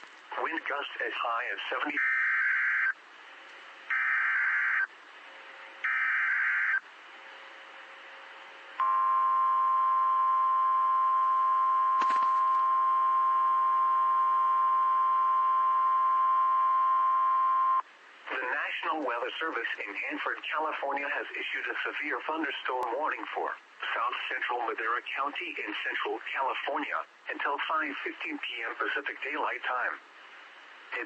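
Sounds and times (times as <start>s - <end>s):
steady warning alarm tone: 3.9s - 4.9s, 5.8s - 6.8s.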